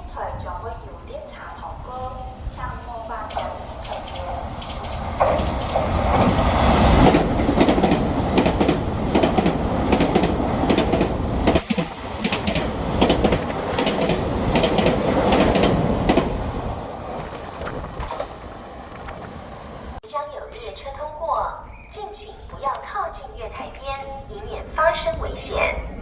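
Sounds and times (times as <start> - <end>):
train passing at speed: 0.0 - 20.0
wheels clacking over rail joints: 2.8 - 20.0.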